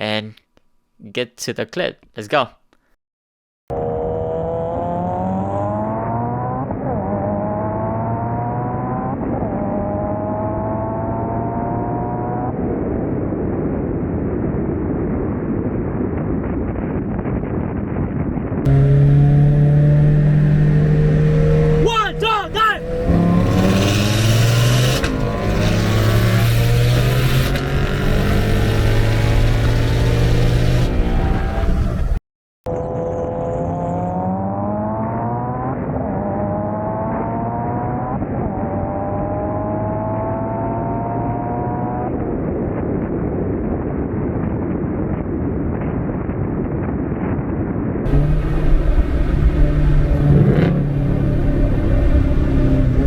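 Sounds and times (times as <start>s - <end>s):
car engine at full throttle: 3.7s - 13.3s, 18.6s - 42.7s, 48.1s - 53.0s
wind and road noise: 3.7s - 53.0s.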